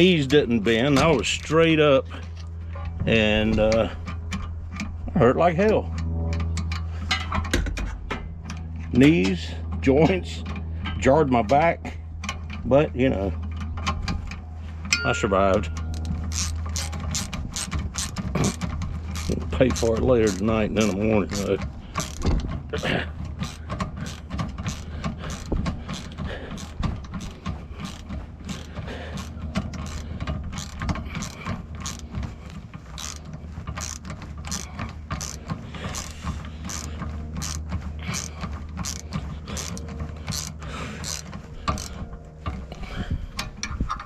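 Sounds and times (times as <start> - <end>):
steady low hum: 0.0 - 44.0
ratchet wrench clicking: 15.8 - 32.1, 33.0 - 42.0.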